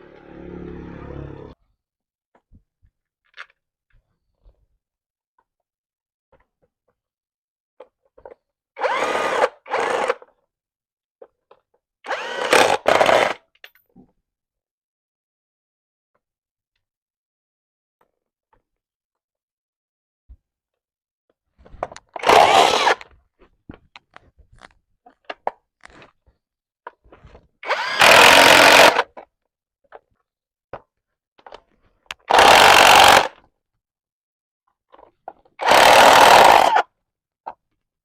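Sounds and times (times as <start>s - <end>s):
power tool bursts: 22.2s - 23.0s, 27.6s - 29.0s, 32.3s - 33.4s, 35.6s - 36.8s.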